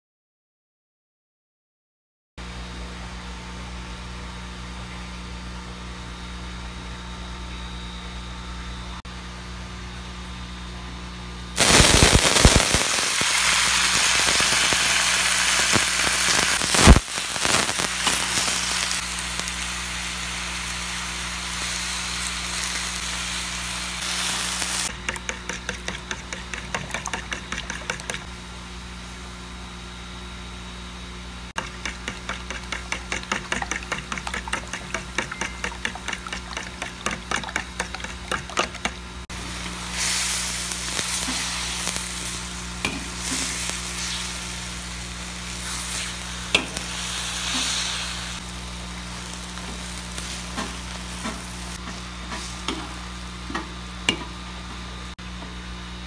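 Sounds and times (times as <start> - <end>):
food sizzling in hot oil: 11.6 - 28.3, 31.6 - 53.9
fork beating eggs in bowl: 24.9 - 28.3, 31.6 - 39.1.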